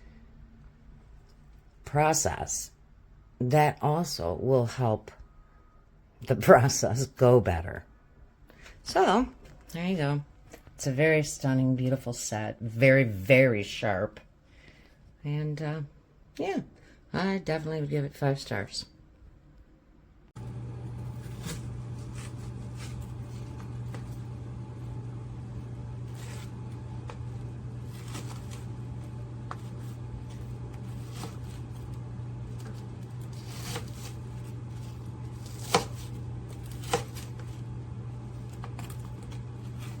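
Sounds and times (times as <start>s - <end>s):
low electrical hum: 0.0s - 40.0s
rustles of handling: 21.0s - 24.5s, 25.5s - 40.0s.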